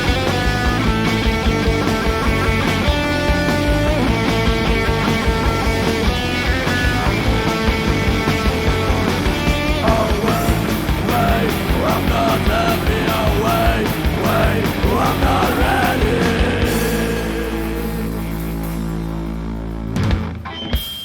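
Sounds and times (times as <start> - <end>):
rock band playing: 0.0 - 21.0
wavering lead guitar line: 0.0 - 21.0.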